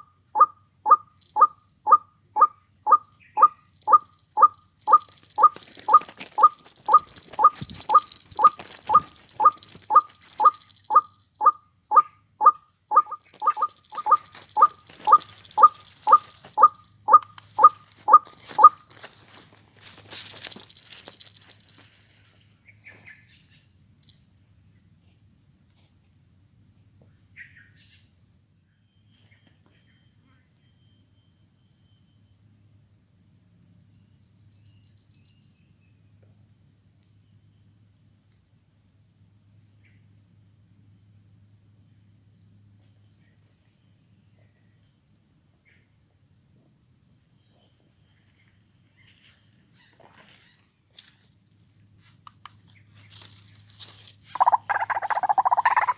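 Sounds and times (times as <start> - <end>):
faint chirps: 0.0 - 18.8, 54.3 - 55.9
high insect drone: 0.0 - 55.9
lower cricket trill: 0.0 - 55.9.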